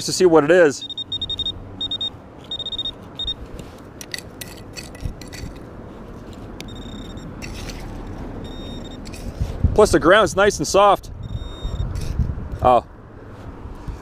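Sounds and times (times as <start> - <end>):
metal detector beeping: 0.7 - 3.5, 6.6 - 7.8, 8.4 - 9.2, 11.2 - 12.1
digging scraping and knocking: 2.4 - 9.6.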